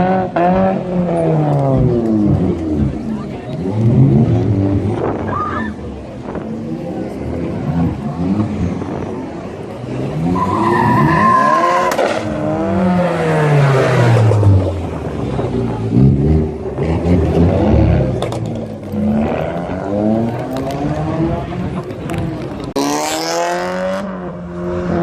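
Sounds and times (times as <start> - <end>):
car engines revving: 0.0 - 25.0
tire squeal: 5.2 - 5.8, 10.2 - 12.4.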